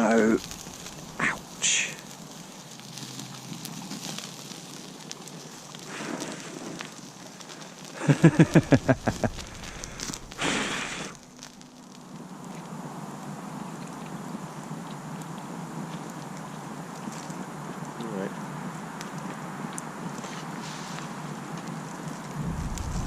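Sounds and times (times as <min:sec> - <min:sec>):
campfire crackling: 0:00.0 - 0:23.0
rush of noise: 0:08.0 - 0:11.2, 0:22.3 - 0:23.0
low pulses: 0:08.1 - 0:11.2, 0:22.3 - 0:23.0.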